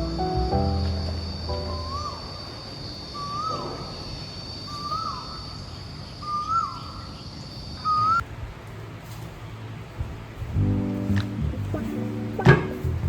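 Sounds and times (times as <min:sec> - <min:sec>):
steady high-pitched whine: 0:00.0 - 0:08.5.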